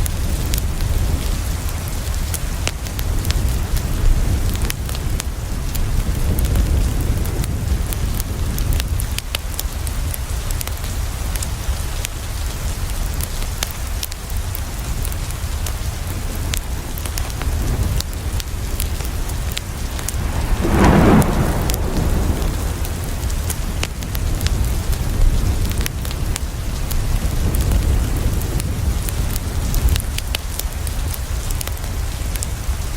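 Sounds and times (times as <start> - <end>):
rain against a window: 0.0 - 32.9
wood fire crackling: 12.6 - 32.9
deep rumble: 18.6 - 26.3.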